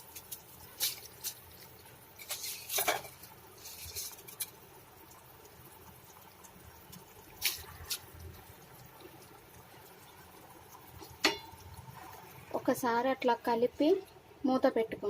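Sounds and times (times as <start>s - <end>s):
rice scraping and pattering in pot: 0.0s - 4.9s, 6.9s - 8.2s
spoon tapping on pot: 11.2s - 11.6s.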